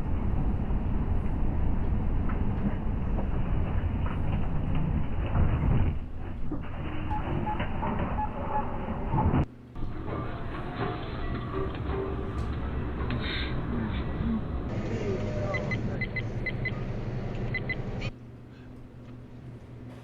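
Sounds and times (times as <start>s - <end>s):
heavy vehicle rumble: 0.0s - 18.1s.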